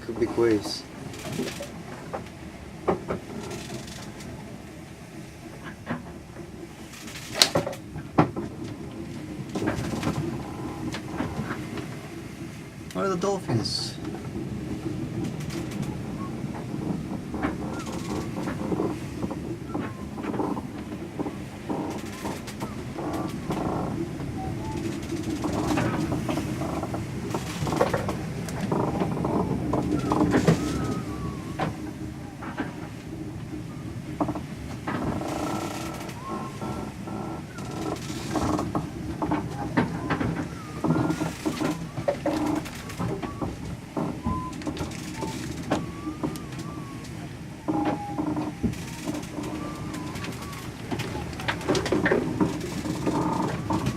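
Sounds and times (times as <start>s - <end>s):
sea noise: 0.0s - 53.9s
strong wind: 0.0s - 53.9s
thin whistling tones: 17.7s - 18.5s, 19.6s - 23.5s, 24.4s - 26.0s, 29.4s - 34.2s, 35.3s - 38.5s, 39.5s - 53.9s
thin falling whistle: 29.9s - 32.4s, 35.6s - 36.8s, 39.9s - 42.1s, 44.2s - 51.4s.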